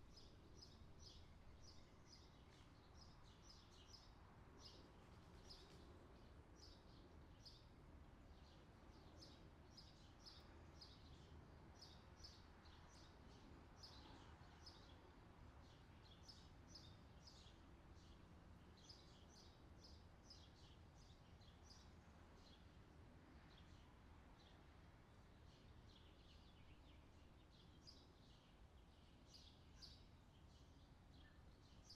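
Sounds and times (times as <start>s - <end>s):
small birds chirping: 8.3s - 31.9s.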